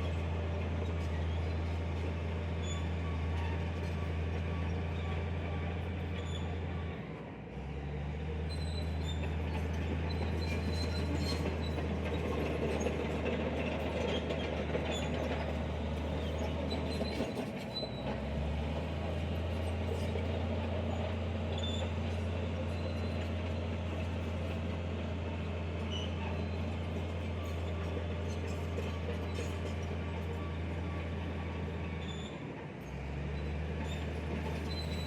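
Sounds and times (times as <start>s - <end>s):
faint metallic squeaks: 0.0s - 7.0s, 8.4s - 35.0s
heavy diesel machinery running: 0.0s - 35.0s.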